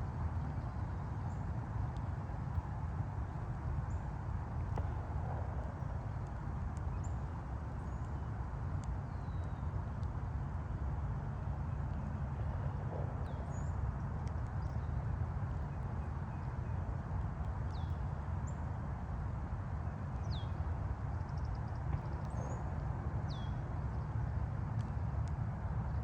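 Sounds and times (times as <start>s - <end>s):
distant highway traffic: 0.0s - 9.2s.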